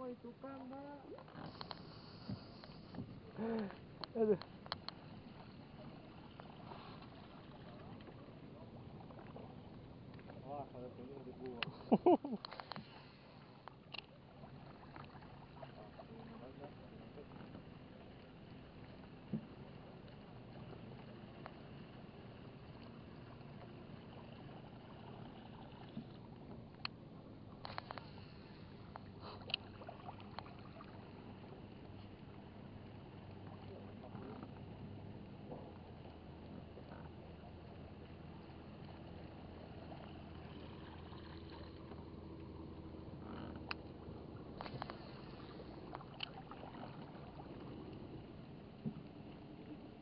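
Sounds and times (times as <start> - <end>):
water: 0.0 - 50.0
faint click: 0.6 - 5.1, 11.5 - 11.8, 12.4 - 14.1, 27.6 - 28.3, 28.9 - 30.6, 44.6 - 46.4.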